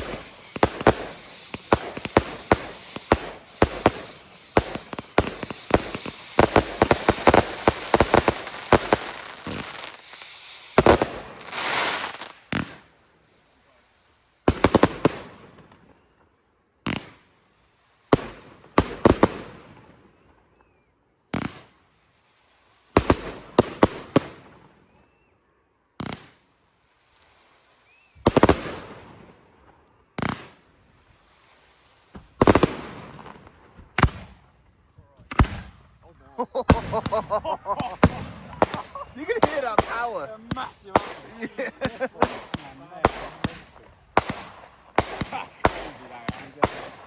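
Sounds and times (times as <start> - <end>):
firework shells bursting: 0.0 - 12.8, 27.2 - 29.4, 30.2 - 34.4, 36.4 - 47.0.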